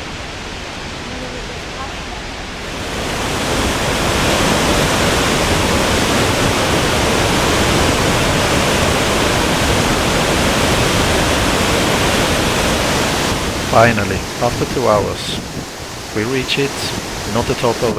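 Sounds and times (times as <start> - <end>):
waterfall rushing and crashing: 0.0 - 17.9.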